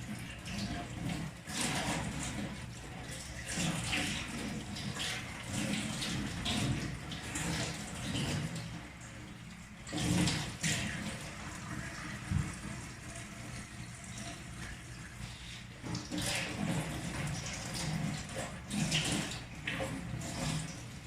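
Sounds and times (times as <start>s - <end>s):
tap water running and splashing: 0.0s - 21.0s.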